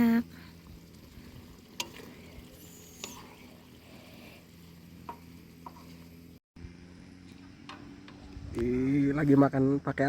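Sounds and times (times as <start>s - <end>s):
food sizzling in a pan: 0.0s - 6.4s.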